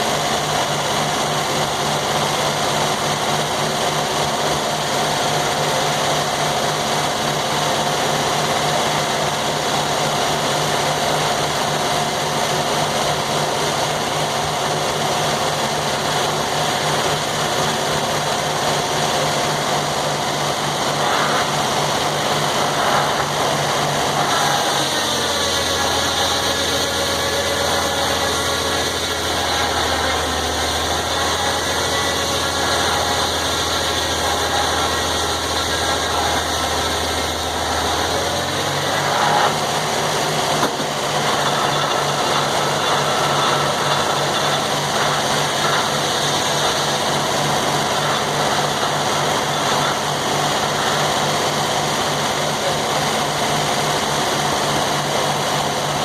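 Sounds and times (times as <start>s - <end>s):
sawmill engine droning: 0.0s - 56.0s.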